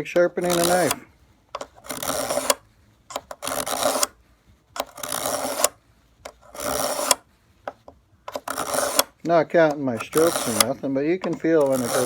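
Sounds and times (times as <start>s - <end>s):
blade click: 0.2s - 1.0s
blade rasping through sharpener: 0.4s - 1.0s, 1.8s - 2.6s, 3.4s - 4.1s, 4.8s - 5.8s, 6.4s - 7.2s, 8.4s - 9.1s, 10.0s - 10.8s, 11.6s - 12.0s.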